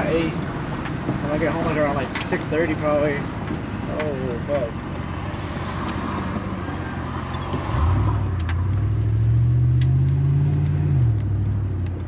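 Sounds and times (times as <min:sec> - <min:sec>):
road noise inside car: 0:00.0 - 0:12.0
car engine accelerating: 0:04.0 - 0:12.0.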